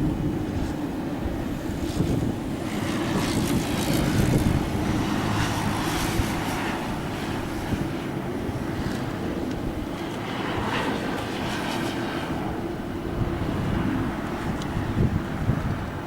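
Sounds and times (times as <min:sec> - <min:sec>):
jet engines rumbling: 0:00.0 - 0:16.0
wind noise on microphone: 0:00.0 - 0:16.0.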